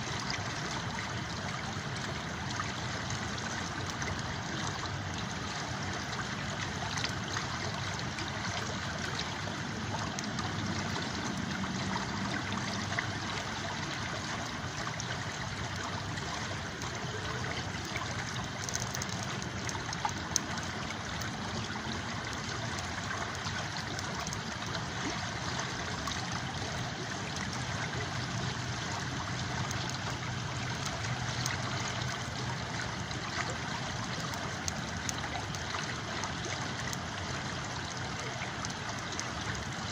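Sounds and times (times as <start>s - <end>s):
river stream flowing: 0.0s - 39.9s.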